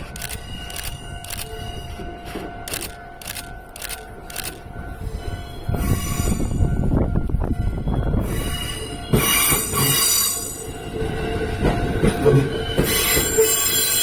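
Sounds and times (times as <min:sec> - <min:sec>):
electric train passing: 0:00.0 - 0:14.0
train wheels squealing: 0:05.1 - 0:06.8, 0:07.8 - 0:14.0.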